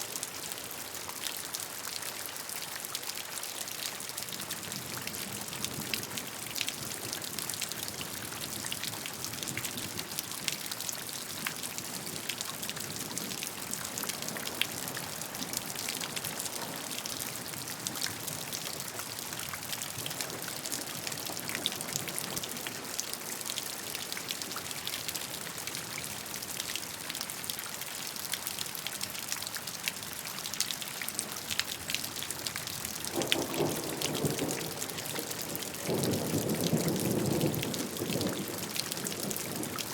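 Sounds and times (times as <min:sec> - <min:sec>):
steady rain with ticking drops: 0:00.0 - 0:39.9
thunder rumbling: 0:33.1 - 0:38.6.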